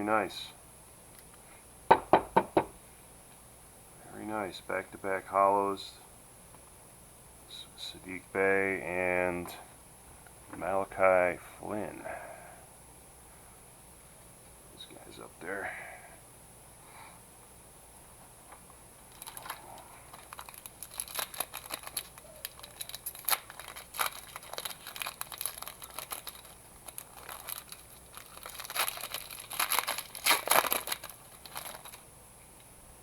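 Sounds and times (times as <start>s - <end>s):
plastic wrapper crinkling: 19.1s - 32.0s.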